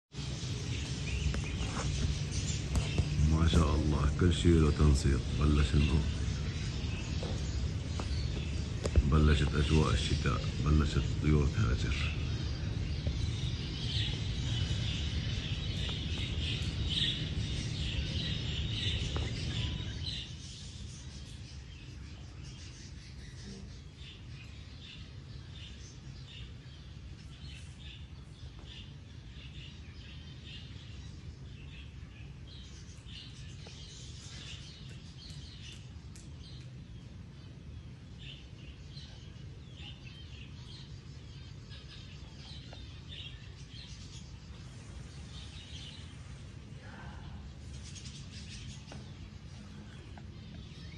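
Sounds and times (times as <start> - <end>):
small birds chirping: 0.1 - 50.9.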